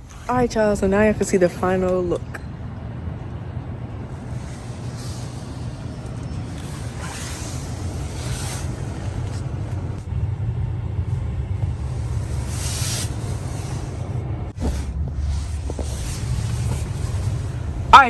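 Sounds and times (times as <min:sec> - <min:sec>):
short hissing whooshes: 0:04.2 - 0:06.0, 0:12.3 - 0:14.0.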